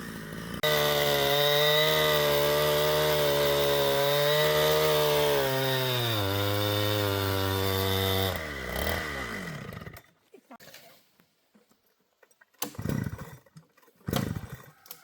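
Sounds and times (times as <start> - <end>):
chainsaw running at high revs: 0.0 - 10.1, 12.6 - 13.5, 14.1 - 14.7.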